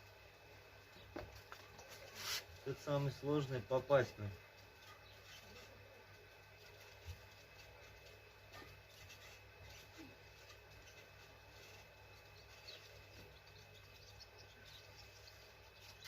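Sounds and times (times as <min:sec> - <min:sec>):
faint hum: 0:00.0 - 0:16.0
faint metal ticks and scrapes: 0:04.5 - 0:13.6.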